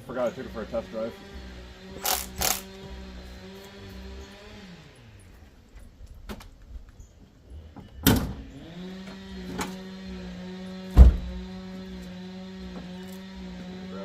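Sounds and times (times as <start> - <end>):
car door clunking shut: 11.0 - 11.3.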